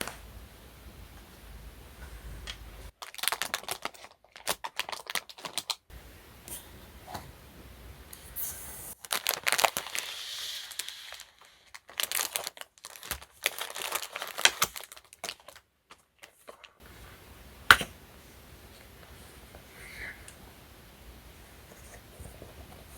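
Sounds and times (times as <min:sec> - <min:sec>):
packaging crinkling and tearing: 0:03.0 - 0:05.8, 0:09.0 - 0:16.8.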